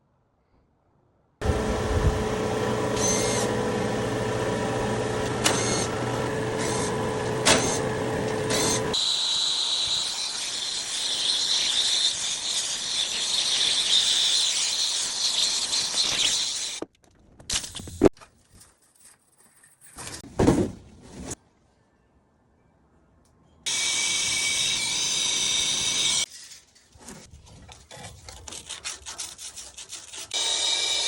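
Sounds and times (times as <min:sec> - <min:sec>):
machine whining: 0:01.4 - 0:14.6.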